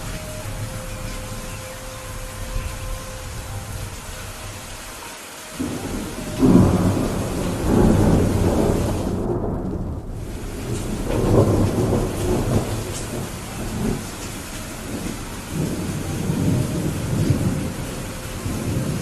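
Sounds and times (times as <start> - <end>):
rain hiss: 0.0 - 19.0
rolling thunder: 5.6 - 19.0.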